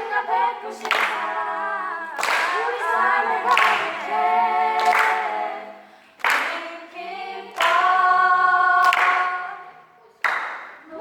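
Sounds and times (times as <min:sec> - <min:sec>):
children singing: 0:00.0 - 0:10.2
sharp hand claps: 0:00.8 - 0:01.3, 0:02.2 - 0:02.7, 0:03.5 - 0:04.0, 0:04.8 - 0:05.2, 0:06.2 - 0:06.7, 0:07.6 - 0:07.9, 0:08.8 - 0:09.4, 0:10.2 - 0:10.9.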